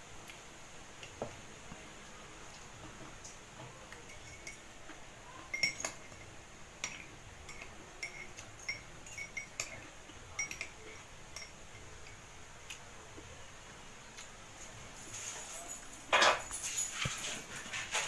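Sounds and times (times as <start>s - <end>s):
cutlery clinking on ceramic cup: 5.5s - 9.8s, 10.4s - 12.2s, 15.4s - 17.3s.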